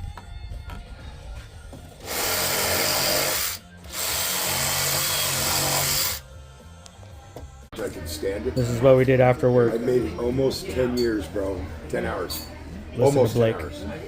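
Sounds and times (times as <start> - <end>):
power tool cutting wood: 2.0 - 6.2.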